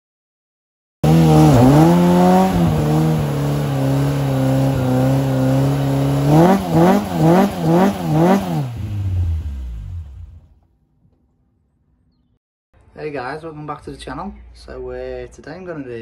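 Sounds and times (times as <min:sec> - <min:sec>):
car engine revving high: 0:01.0 - 0:10.5.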